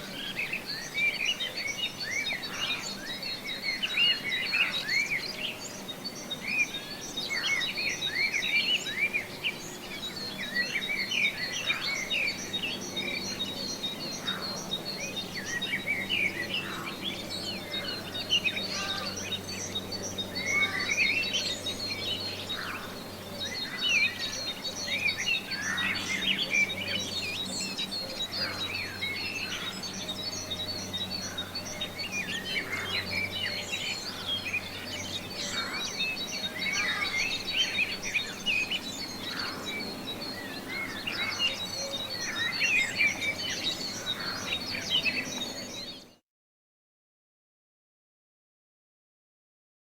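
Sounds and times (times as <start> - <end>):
birds chirping and singing: 0.0 - 46.2.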